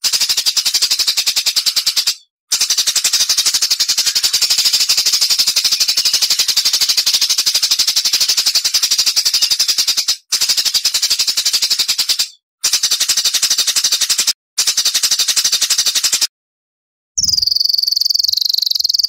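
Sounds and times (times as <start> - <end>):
songbird rapid high notes: 2.6 - 10.2.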